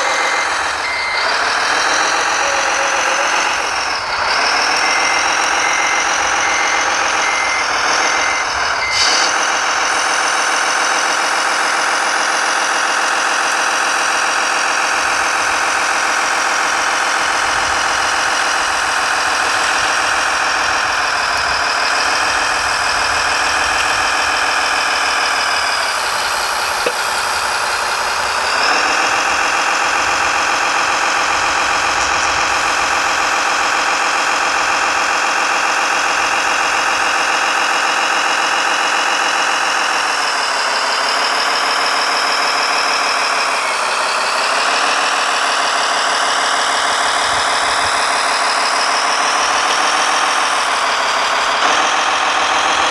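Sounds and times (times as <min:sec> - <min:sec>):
reversing beeper: 0:00.0 - 0:36.8
model engine running: 0:00.0 - 0:52.9.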